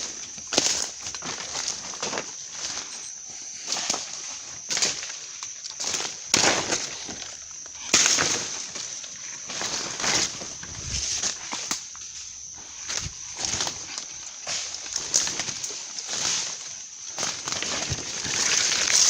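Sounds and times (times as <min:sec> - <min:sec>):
high-pitched hum: 0:10.3 - 0:11.3
footsteps crunching leaf litter: 0:17.3 - 0:19.0.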